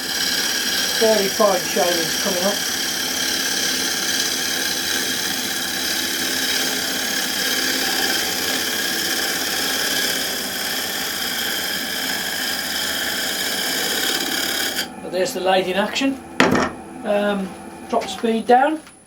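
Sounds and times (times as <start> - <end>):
gouge cutting wood: 0.0 - 14.9
wood lathe whining: 0.0 - 18.8.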